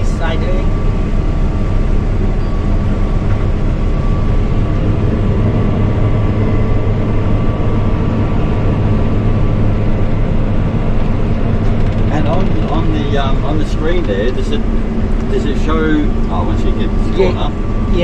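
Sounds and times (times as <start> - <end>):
combine harvester engine drone: 0.0 - 18.0
thin steady whine: 0.0 - 18.0.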